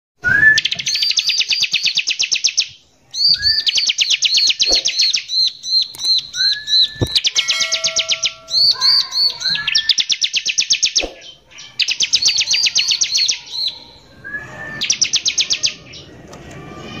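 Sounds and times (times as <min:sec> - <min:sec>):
bird singing rapid trills: 0:00.6 - 0:14.1.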